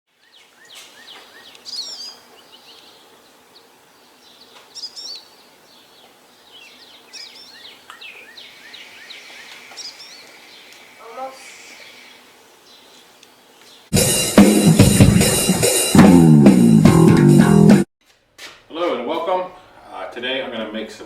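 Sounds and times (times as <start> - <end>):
songbirds singing: 0.1 - 13.9.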